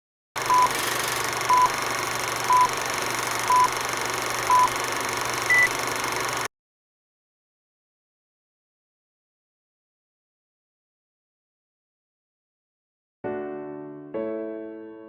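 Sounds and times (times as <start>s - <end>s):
short electronic beeps: 0.4s - 6.5s.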